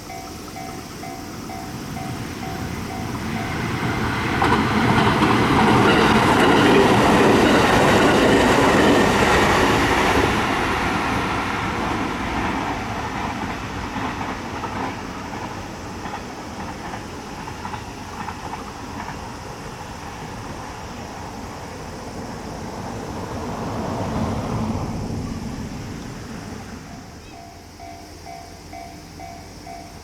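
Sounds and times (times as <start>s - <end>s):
train wheels clattering on rails: 0.0s - 30.0s.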